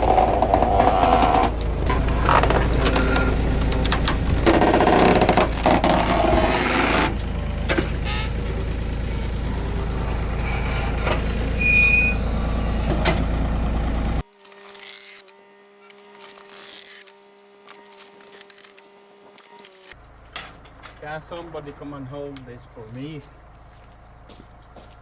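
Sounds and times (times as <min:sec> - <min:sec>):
workshop clanking and scraping: 0:00.0 - 0:13.6, 0:19.9 - 0:23.0
machine humming: 0:00.0 - 0:14.2
short high squeak: 0:08.0 - 0:08.5, 0:10.4 - 0:13.1.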